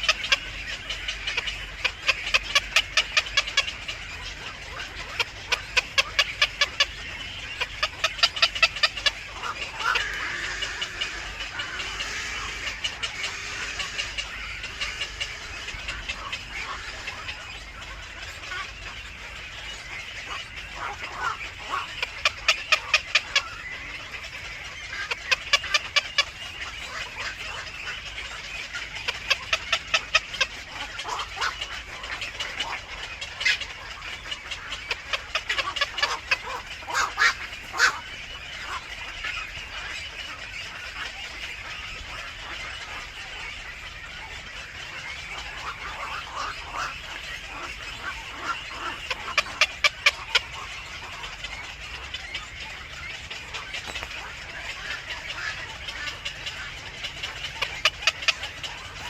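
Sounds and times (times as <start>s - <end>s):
birds calling sharp notes: 0.0s - 59.0s.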